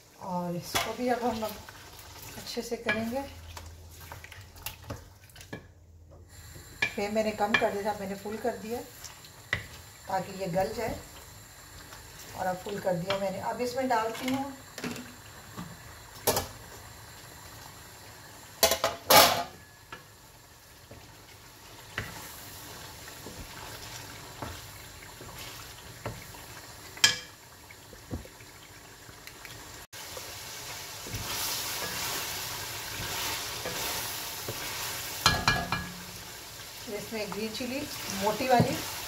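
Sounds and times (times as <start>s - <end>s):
chicken sizzling in a pan: 0.0s - 4.1s, 6.3s - 39.0s
metal pan and lid clanks: 18.6s - 19.6s
wooden spoon scraping a pan: 30.6s - 35.4s.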